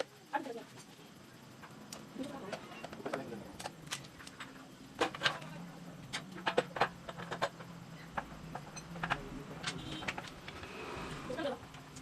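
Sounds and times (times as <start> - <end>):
tools and metal parts clicking: 2.2 - 10.6.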